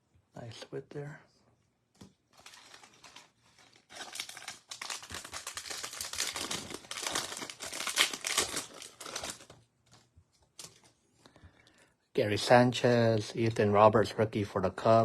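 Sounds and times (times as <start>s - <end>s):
wrapper crinkling and tearing: 2.3s - 10.9s.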